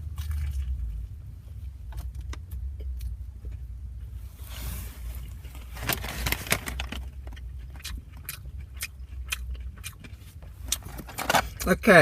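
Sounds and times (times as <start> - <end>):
steady low hum: 0.0 - 12.0
wrapper rustle: 4.7 - 7.2
crunchy chewing: 7.0 - 11.7.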